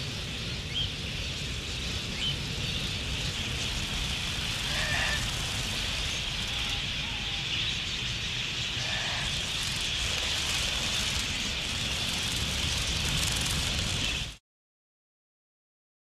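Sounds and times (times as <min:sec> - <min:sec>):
low rumble: 0:00.1 - 0:14.4
budgerigars chattering: 0:03.0 - 0:13.5.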